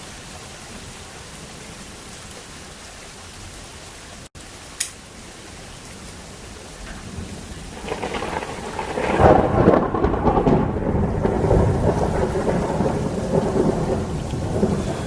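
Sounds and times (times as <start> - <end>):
rain falling: 0.0 - 15.0
thunder rolling and rumbling: 6.8 - 15.0.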